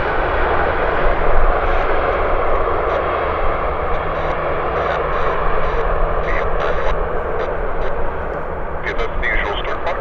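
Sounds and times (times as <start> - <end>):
jet airliner engines rushing: 0.0 - 10.0.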